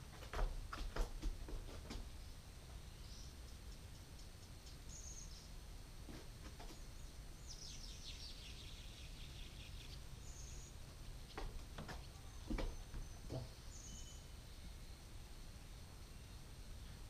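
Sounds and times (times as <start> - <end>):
songbird chirping and trilling: 2.2 - 5.6, 6.7 - 16.9
faint knocks: 11.3 - 13.6.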